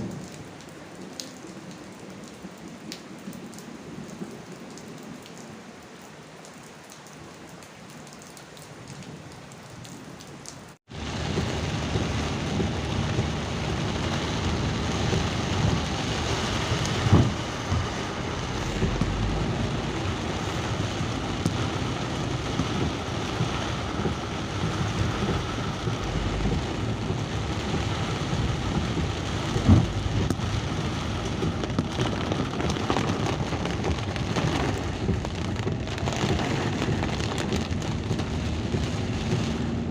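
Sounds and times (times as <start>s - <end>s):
steady rain: 0.0s - 39.9s
low thuds: 10.9s - 32.2s.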